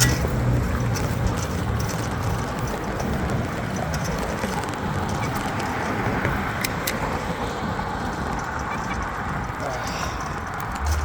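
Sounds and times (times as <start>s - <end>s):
bicycle road noise: 0.0s - 11.0s.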